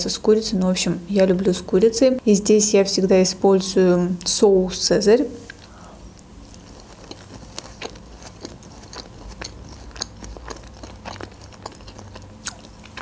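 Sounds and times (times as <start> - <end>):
person chewing salad: 5.4 - 13.0.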